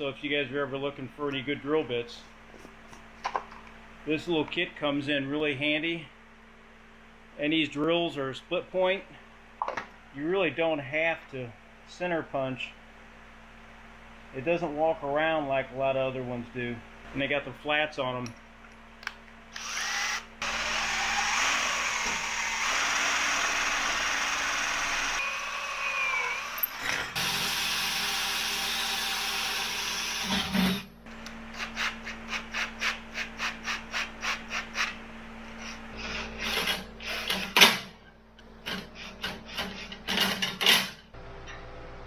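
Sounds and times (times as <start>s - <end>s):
power drill drilling into steel: 19.6s - 30.5s.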